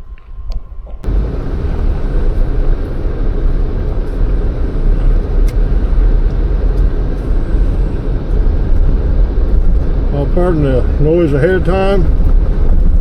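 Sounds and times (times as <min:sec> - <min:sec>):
tyre and wind noise: 0:11.8 - 0:13.0.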